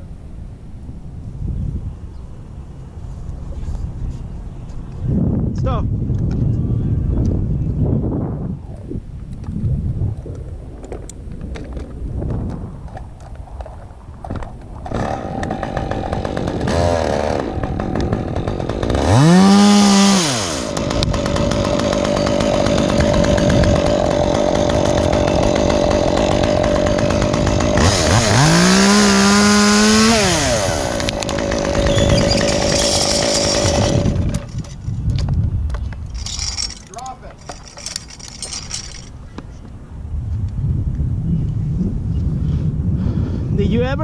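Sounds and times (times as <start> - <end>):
chainsaw revving: 14.3 - 34.8, 36.1 - 39.1.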